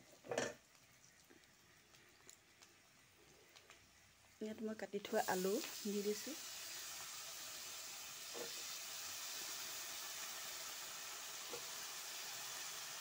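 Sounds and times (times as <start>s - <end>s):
potatoes sizzling in oil: 0.0s - 13.0s.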